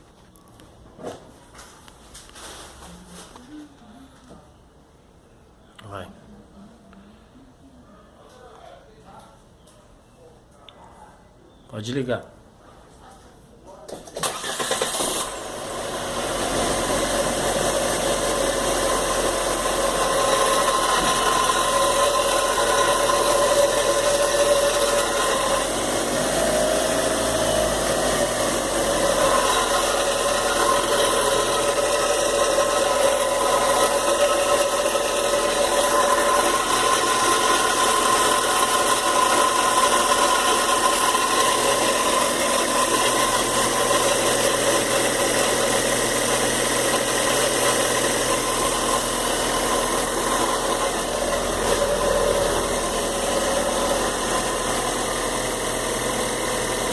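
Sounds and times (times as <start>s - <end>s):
car engine cold start: 14.0s - 56.9s.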